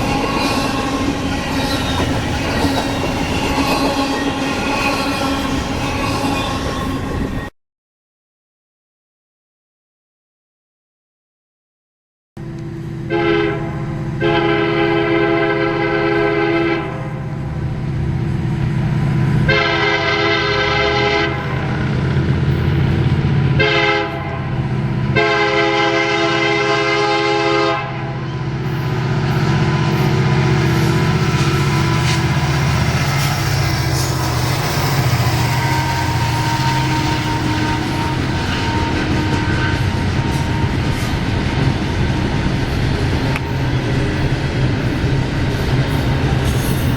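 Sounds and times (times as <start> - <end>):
wheels clattering over rail joints: 0.0 - 5.6
train engine rumble: 0.0 - 7.5, 12.4 - 46.9
train horn: 12.4 - 17.4, 19.4 - 21.8, 23.4 - 42.4.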